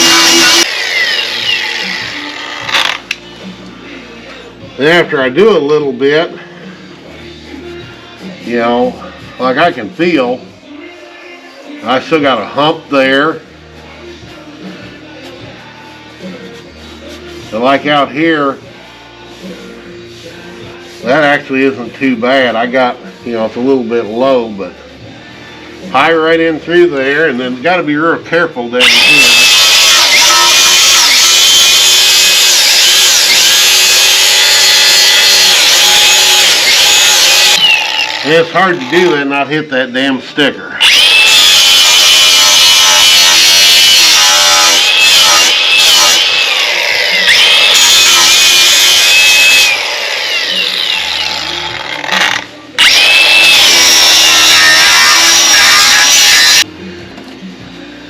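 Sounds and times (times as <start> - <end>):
angle grinder grinding steel: 0.0 - 3.2, 28.8 - 39.3, 40.8 - 56.7.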